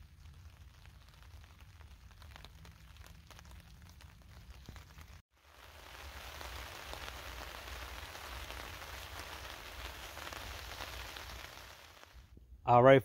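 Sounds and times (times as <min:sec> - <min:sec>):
light rain falling: 0:00.0 - 0:12.4.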